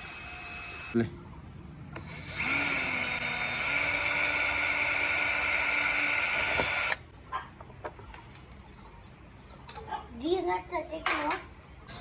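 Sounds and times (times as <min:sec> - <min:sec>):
power drill whining: 0:00.0 - 0:01.0, 0:02.0 - 0:07.0.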